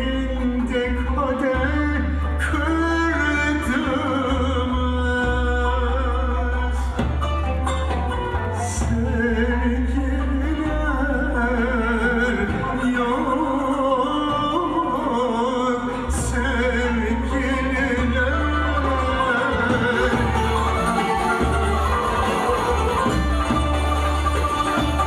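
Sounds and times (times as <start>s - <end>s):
instrumental accompaniment with bass: 0.0s - 25.0s
person singing ornamented melody: 9.1s - 25.0s.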